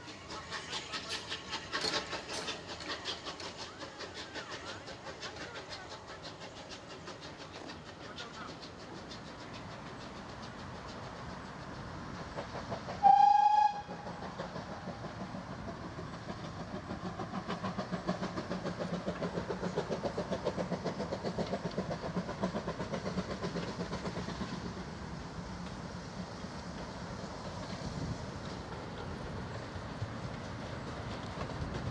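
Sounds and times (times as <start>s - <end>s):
train rhythmic beat: 0.0s - 25.5s
steam locomotive whistle: 13.0s - 14.1s.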